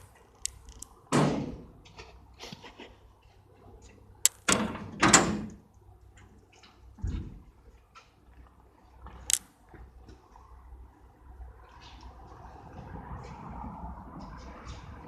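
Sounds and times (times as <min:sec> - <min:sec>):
sharp clicks and knocks: 0:00.0 - 0:02.1, 0:04.2 - 0:05.6.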